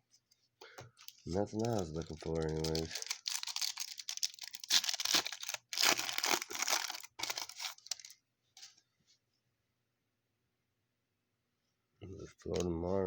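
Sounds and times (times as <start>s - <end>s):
wrapper tearing and crinkling: 1.0s - 8.2s.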